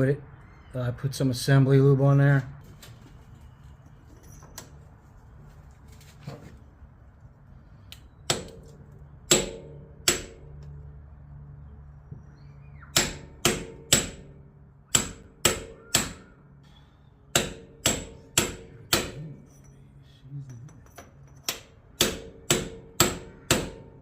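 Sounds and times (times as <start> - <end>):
hammer striking metal: 8.3 - 8.7, 9.3 - 10.7, 12.9 - 16.3, 17.3 - 19.8, 20.8 - 24.0.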